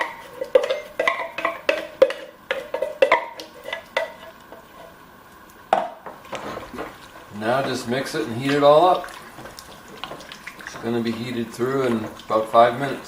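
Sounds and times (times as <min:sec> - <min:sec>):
metal spoon knocking on pot: 0:00.0 - 0:03.4.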